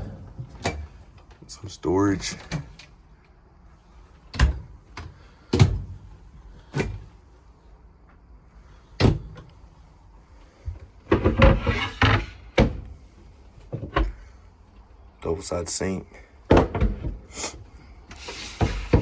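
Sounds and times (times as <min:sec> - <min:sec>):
cabinet doors and drawers knocking shut: 0:04.4 - 0:04.7, 0:05.5 - 0:06.0, 0:11.1 - 0:12.9, 0:16.5 - 0:17.3, 0:18.5 - 0:19.0.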